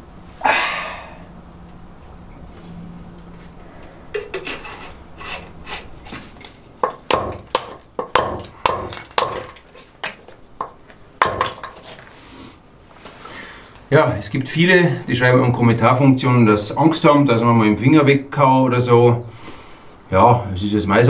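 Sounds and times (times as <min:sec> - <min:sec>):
light scraping and handling: 0:02.6 - 0:06.8
knife chopping into wood: 0:06.8 - 0:10.2, 0:11.2 - 0:11.9.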